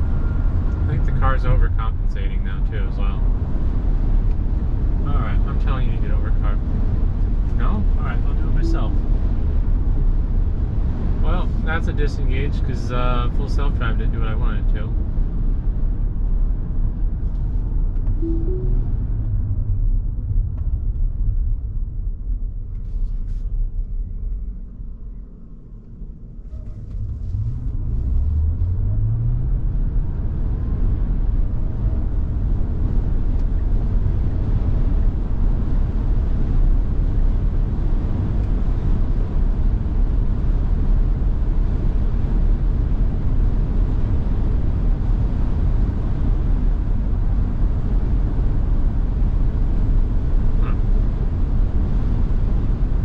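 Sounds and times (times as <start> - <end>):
car hum rising: 0.0 - 13.2, 14.0 - 53.0.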